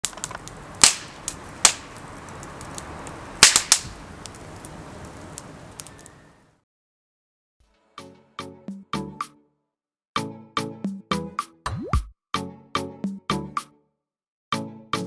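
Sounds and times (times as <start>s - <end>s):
fire hissing: 0.0s - 6.4s
loud sharp pops: 0.0s - 6.4s
wood fire crackling: 0.0s - 6.4s.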